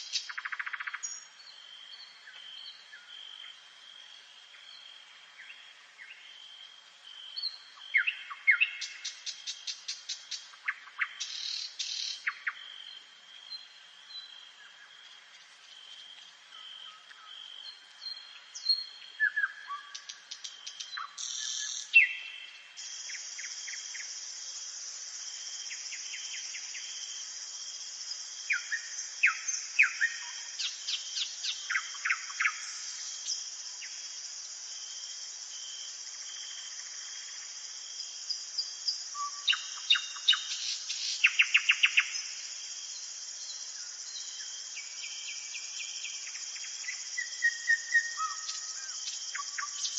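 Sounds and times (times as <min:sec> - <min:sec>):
songbirds chirping and trilling: 0:00.0 - 0:49.9
high insect buzz: 0:20.4 - 0:49.9.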